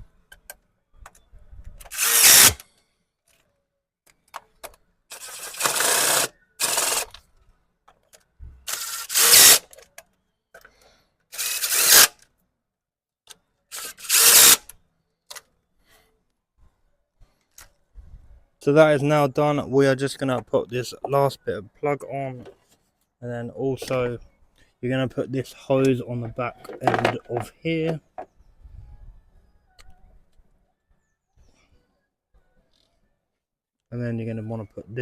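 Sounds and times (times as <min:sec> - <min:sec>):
power drill-driver running: 0:01.9 - 0:02.6, 0:05.1 - 0:07.2, 0:08.7 - 0:09.7, 0:11.3 - 0:12.2, 0:13.7 - 0:14.6.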